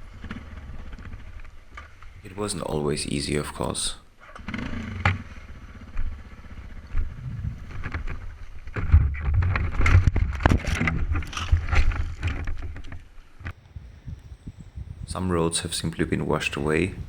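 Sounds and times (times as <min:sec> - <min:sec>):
motorcycle engine rumble: 0:04.6 - 0:08.7, 0:13.5 - 0:17.0
wind on microphone: 0:06.0 - 0:12.4, 0:13.4 - 0:17.0.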